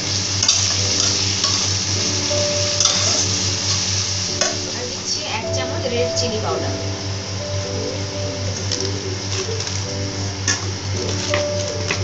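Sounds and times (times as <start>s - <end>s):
food sizzling in oil: 0.0s - 12.0s
metal spatula scraping pan: 2.8s - 3.3s.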